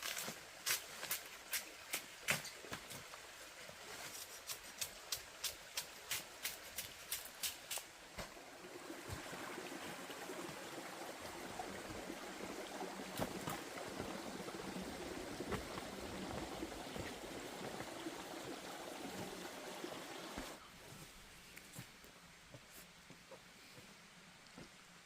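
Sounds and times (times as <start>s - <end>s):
water trickling: 8.3s - 20.6s.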